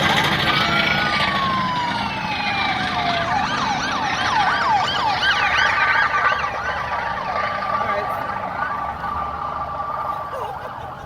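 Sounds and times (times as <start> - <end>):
highway traffic noise: 0.0 - 11.0
police sirens wailing and yelping: 0.0 - 11.0.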